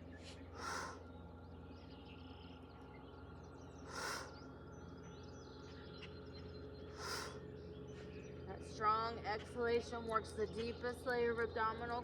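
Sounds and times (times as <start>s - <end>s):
birds chirping faintly: 0.0s - 12.0s
forceful breathy exhalation: 3.9s - 4.3s, 7.0s - 7.4s.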